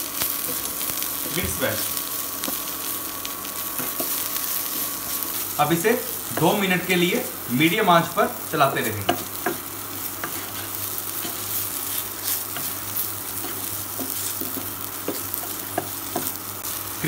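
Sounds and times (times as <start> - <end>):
vegetables sizzling in oil: 0.0 - 17.0
spatula scraping and tapping pan: 9.0 - 16.4.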